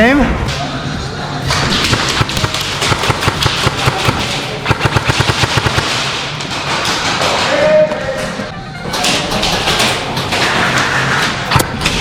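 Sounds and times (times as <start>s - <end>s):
airsoft guns firing rapidly: 1.8s - 7.5s.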